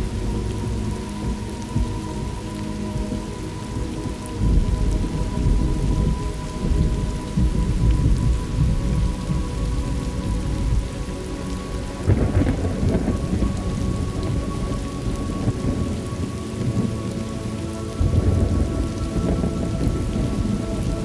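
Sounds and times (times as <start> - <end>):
steady rain: 0.0 - 21.0
rolling thunder: 3.0 - 11.1, 11.8 - 16.9, 18.0 - 21.0.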